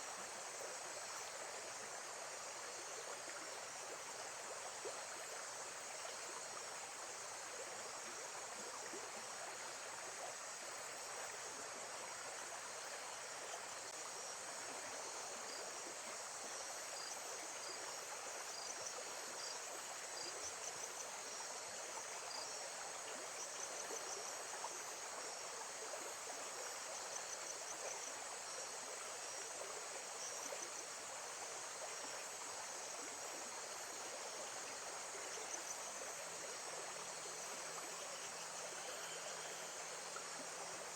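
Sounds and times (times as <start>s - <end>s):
insects chirping: 8.8s - 40.9s.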